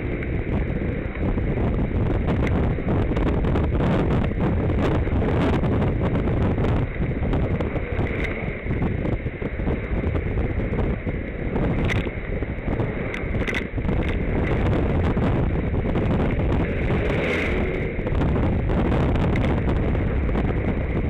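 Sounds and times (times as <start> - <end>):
wind buffeting microphone: 0.0 - 21.0
sharp clicks: 13.1 - 14.2.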